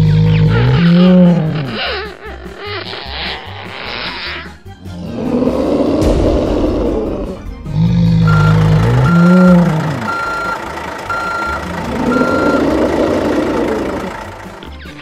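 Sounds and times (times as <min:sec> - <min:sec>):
growl: 0:00.0 - 0:02.5, 0:04.8 - 0:08.4
deep pitch-bending sound: 0:00.0 - 0:10.6
reversing alarm beeps: 0:08.2 - 0:12.8.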